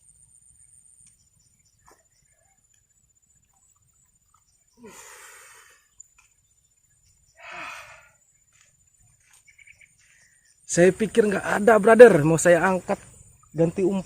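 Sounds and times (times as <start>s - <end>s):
heavy breathy exhales: 4.8s - 5.9s, 7.4s - 8.2s.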